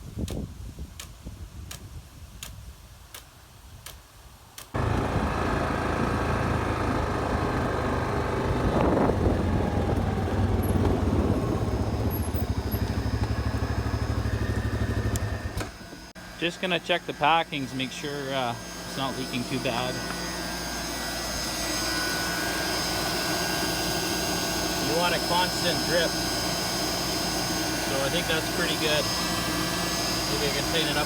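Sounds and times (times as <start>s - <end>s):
electric motor hum: 4.8s - 31.0s
water pump running: 4.8s - 31.0s.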